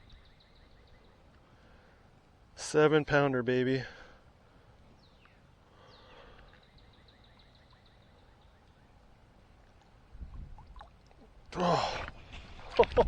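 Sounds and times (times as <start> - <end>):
bird chirping: 0.0 - 1.3, 4.9 - 9.1
outdoor background noise: 0.0 - 13.0.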